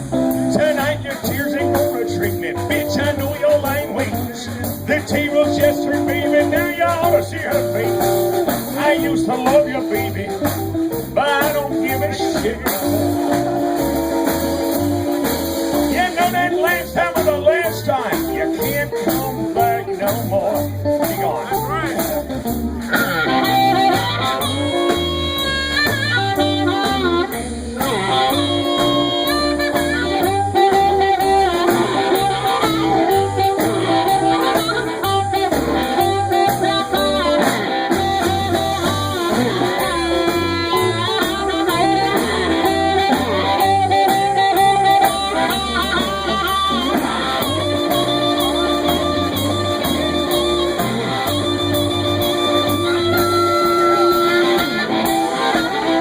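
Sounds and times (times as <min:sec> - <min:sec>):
blues band instrumental: 0:00.0 - 0:56.0
guitar: 0:00.0 - 0:56.0
lead melody: 0:00.0 - 0:56.0
steady bass line: 0:00.0 - 0:56.0.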